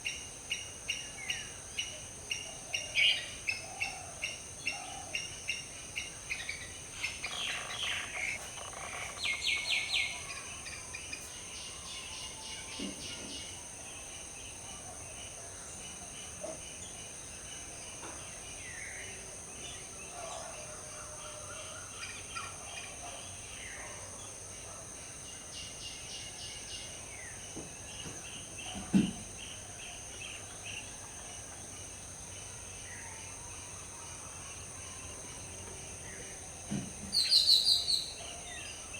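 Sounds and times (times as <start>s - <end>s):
birds chirping and trilling: 6.4s - 10.8s.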